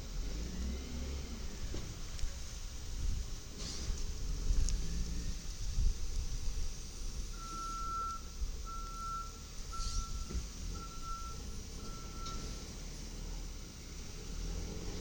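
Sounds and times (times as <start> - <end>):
truck backup alarm beeping: 7.2 - 12.9.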